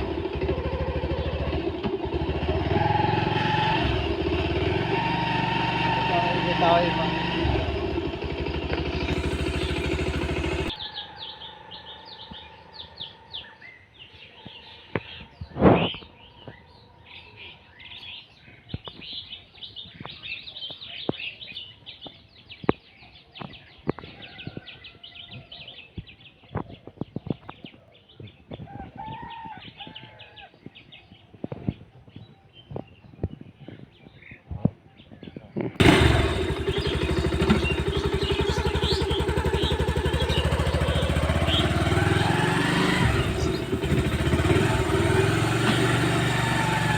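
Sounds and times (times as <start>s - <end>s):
motorcycle passing: 0.0s - 13.6s, 35.8s - 46.9s
small birds chirping: 3.4s - 46.9s
loud bird call: 35.8s - 46.9s.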